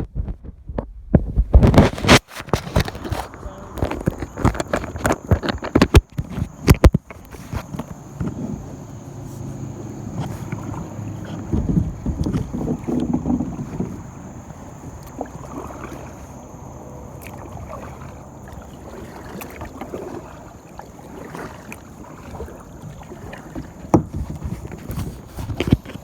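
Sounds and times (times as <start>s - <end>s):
wind on microphone: 0.0s - 16.8s
water splashing around a kayak: 0.2s - 26.0s.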